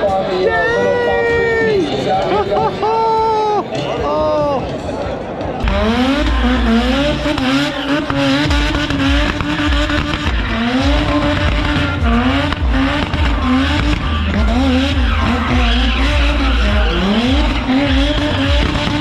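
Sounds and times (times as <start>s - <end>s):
car engine revving hard: 5.6s - 19.0s.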